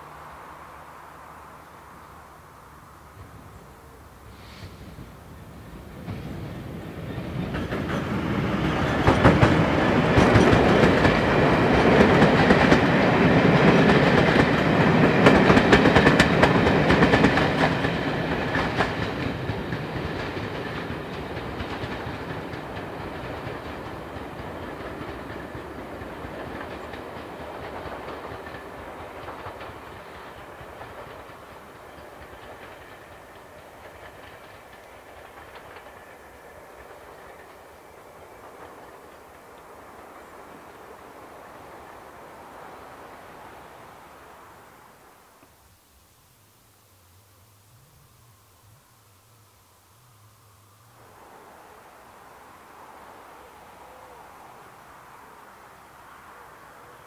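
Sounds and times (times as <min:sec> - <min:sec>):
passenger train passing: 0:00.0 - 0:57.0
wheels clicking over rail joints: 0:03.2 - 0:45.6.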